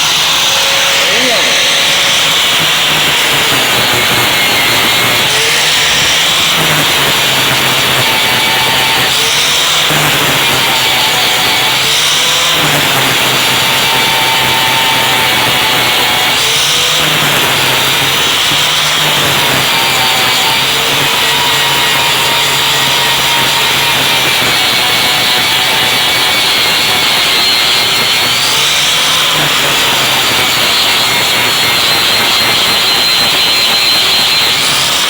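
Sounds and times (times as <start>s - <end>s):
angle grinder grinding: 0.0s - 35.0s
motor hum: 0.0s - 35.0s.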